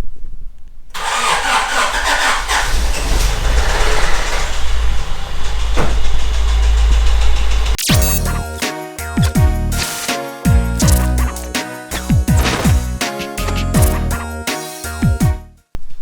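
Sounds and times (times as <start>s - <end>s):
car engine starting and running: 1.0s - 7.9s.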